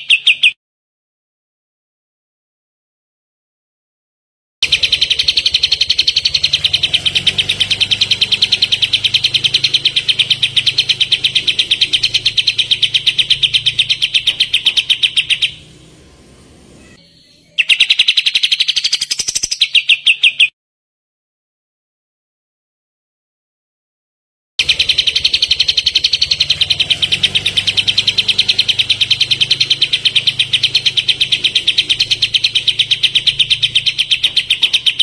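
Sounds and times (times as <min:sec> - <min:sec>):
songbird rapid-fire trill: 0:00.0 - 0:00.6, 0:04.6 - 0:20.5, 0:24.6 - 0:35.0.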